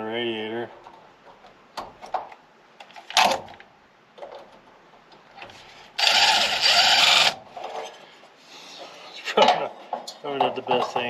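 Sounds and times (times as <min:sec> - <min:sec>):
power drill drilling: 0:06.0 - 0:07.4.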